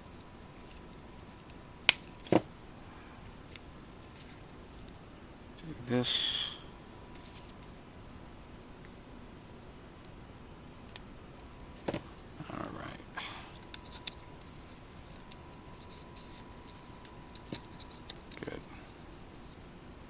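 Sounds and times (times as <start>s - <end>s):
faint steady tone: 0.0s - 20.0s
rustle: 0.0s - 20.0s.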